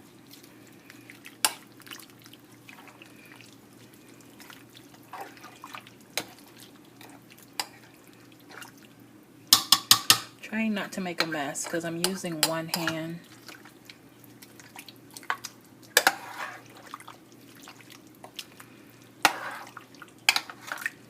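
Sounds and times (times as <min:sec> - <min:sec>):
utensil clattering against pot: 0:09.5 - 0:10.3.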